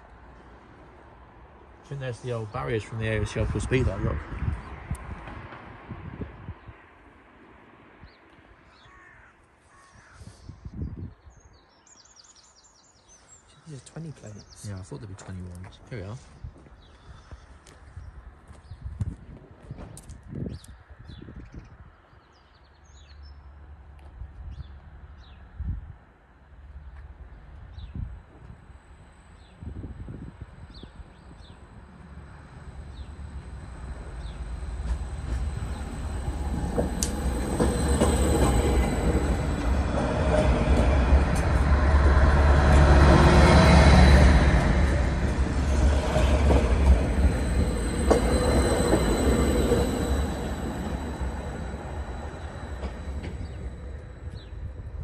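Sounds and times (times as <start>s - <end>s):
diesel train rumble passing: 0.0s - 8.1s, 26.2s - 55.0s
high wheel squeal: 28.3s - 55.0s.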